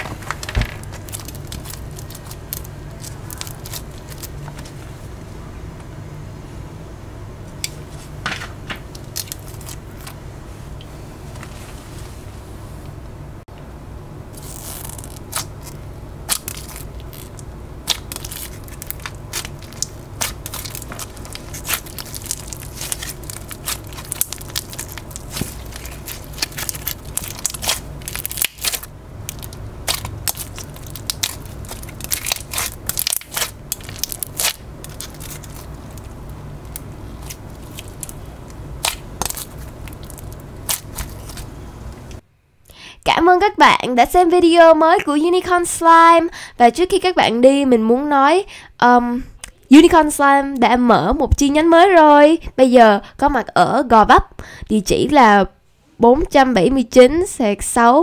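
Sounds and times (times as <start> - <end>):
slime crackling and popping: 0.0 - 4.4, 8.9 - 10.1, 14.4 - 41.5
steady low hum: 0.0 - 57.7.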